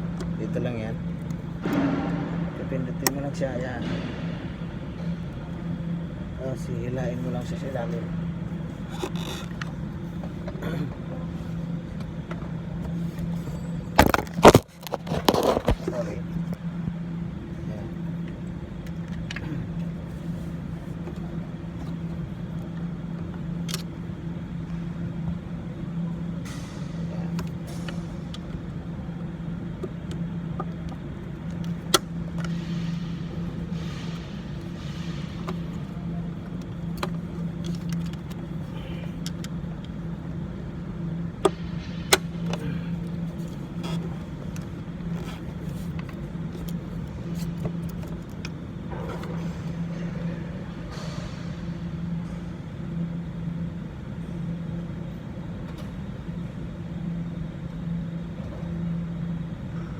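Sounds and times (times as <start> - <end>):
low mechanical hum: 0.0 - 59.9
hands rustling and scraping wiring: 8.6 - 12.2, 12.8 - 16.6, 29.6 - 40.3, 41.4 - 49.9.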